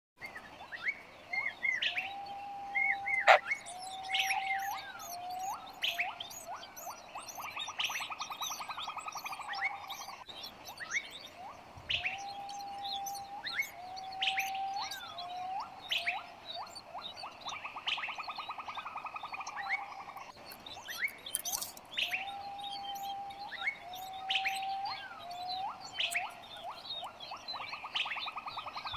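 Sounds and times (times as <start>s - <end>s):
birds chirping and whistling: 0.2s - 28.9s
buzzy bird trill: 3.2s - 11.2s, 19.3s - 28.9s.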